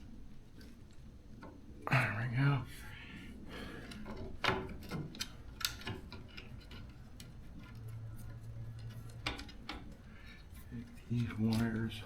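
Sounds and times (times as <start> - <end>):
clicks of plastic parts handled: 3.8 - 12.0.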